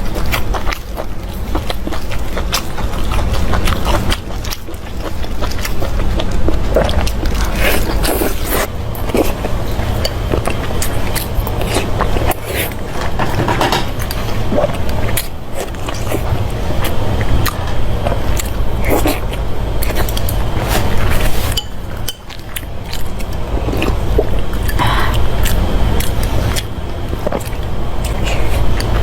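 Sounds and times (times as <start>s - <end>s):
chewing: 0.0s - 29.0s
steady low rumble: 0.0s - 29.0s
utensils clinking against a dish: 7.4s - 16.2s, 19.8s - 23.9s.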